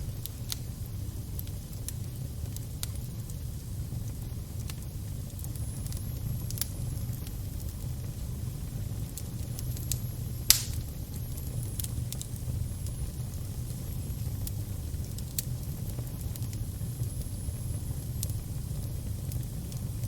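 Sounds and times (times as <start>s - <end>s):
fire rumble and crackles: 0.0s - 20.0s
loud pop from fire: 9.9s - 11.9s.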